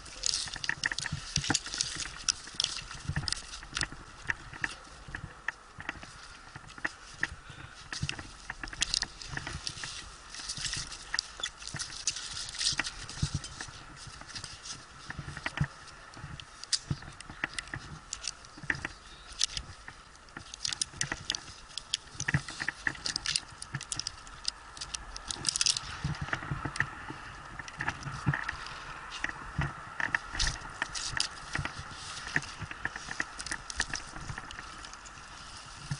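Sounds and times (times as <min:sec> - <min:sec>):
rustling: 0:00.0 - 0:35.9.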